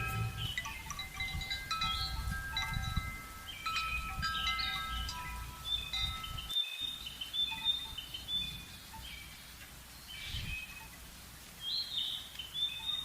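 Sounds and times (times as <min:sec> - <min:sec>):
faint low outdoor rumble: 0:00.0 - 0:06.5
small birds chirping: 0:00.0 - 0:13.0.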